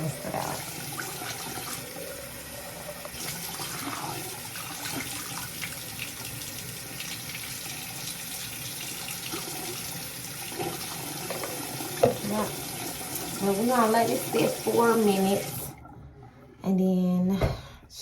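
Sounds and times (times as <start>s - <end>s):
sink tap running: 0.0s - 15.8s
brush being rinsed: 11.2s - 12.6s.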